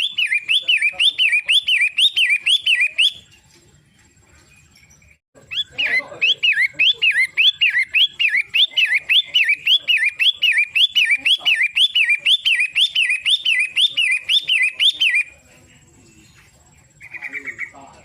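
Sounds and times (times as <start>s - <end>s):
shrike calling sharp whistled notes: 0.0s - 3.3s, 5.5s - 15.3s.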